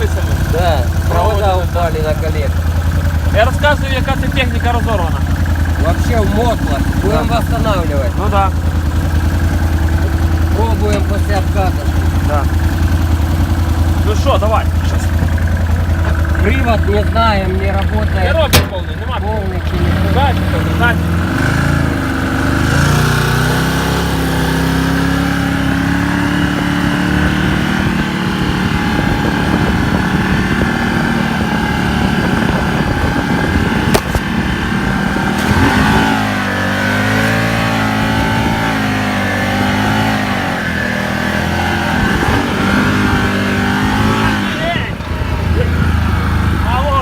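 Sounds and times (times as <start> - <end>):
buggy engine revving: 0.0 - 47.0
sharp click: 33.9 - 34.3.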